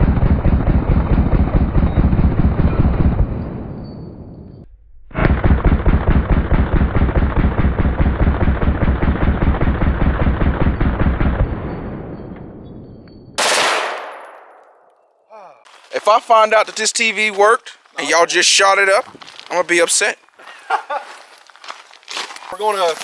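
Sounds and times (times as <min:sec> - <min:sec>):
automatic gunfire burst: 0:13.4 - 0:14.5.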